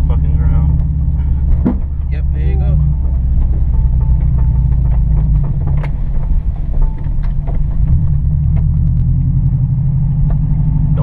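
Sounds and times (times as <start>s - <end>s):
car engine and road rumble: 0.0s - 11.0s
car knocks over bumps: 0.0s - 11.0s.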